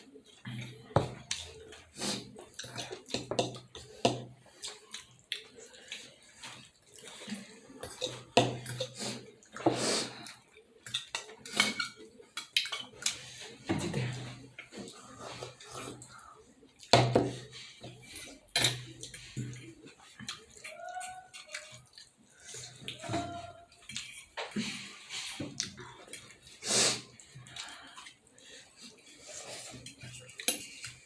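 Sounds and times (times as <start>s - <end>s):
wet chewing and slurping: 0.0s - 31.0s
dishes or cutlery clinking: 11.0s - 12.9s.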